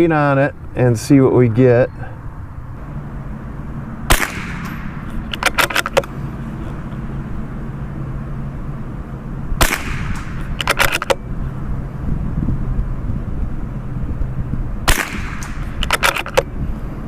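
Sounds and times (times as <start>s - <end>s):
rifle bolt clicks: 4.1s - 6.1s, 9.7s - 11.2s, 14.9s - 16.5s
rifle shots: 4.1s - 6.1s, 9.6s - 11.2s, 14.9s - 16.4s
wind rumbling on microphone: 8.5s - 17.0s.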